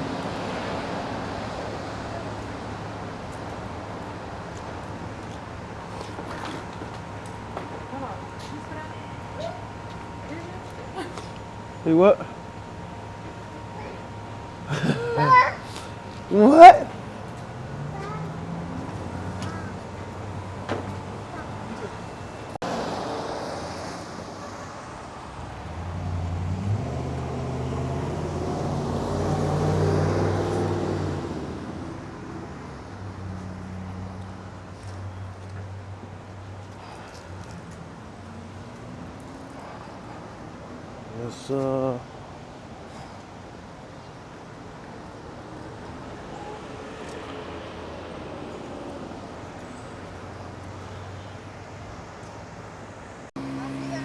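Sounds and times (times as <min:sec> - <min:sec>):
vehicle hum and rushing: 0:00.0 - 0:10.5, 0:11.1 - 0:41.1, 0:42.2 - 0:54.0
car engine running: 0:53.4 - 0:54.0.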